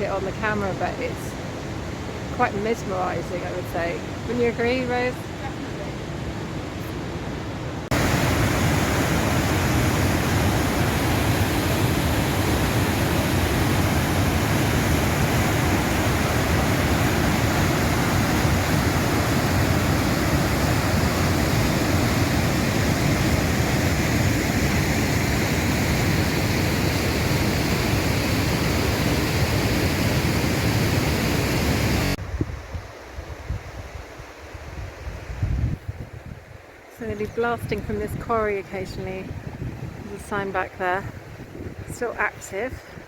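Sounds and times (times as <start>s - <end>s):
waterfall rushing: 7.8s - 32.2s.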